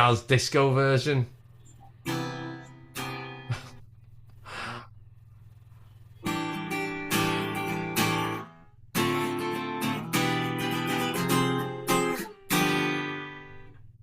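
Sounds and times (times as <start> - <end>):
guitar strumming chords: 2.0 - 3.8, 6.2 - 14.0.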